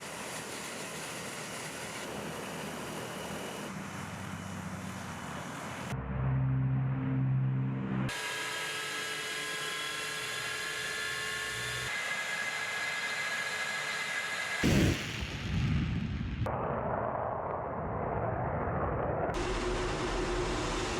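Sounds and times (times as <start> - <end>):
deep humming drone: 5.9 - 8.1.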